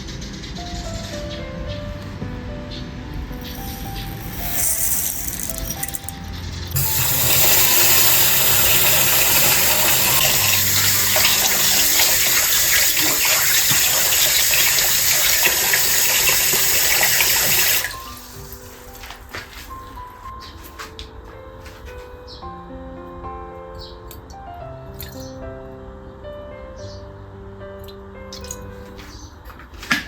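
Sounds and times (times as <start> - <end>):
soft background music: 0.0 - 30.0
water running: 3.4 - 19.6.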